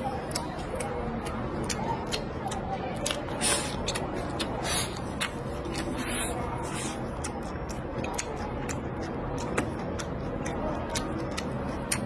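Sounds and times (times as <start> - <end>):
person chewing: 0.0 - 12.0
wet mouth clicks and smacks: 7.0 - 12.0.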